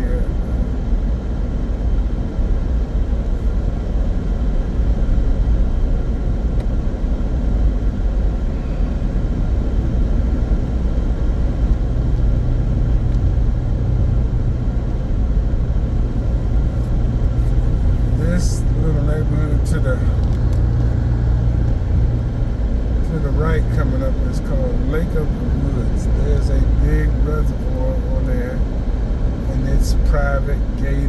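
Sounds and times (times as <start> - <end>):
car cabin road and engine rumble: 0.0 - 31.0.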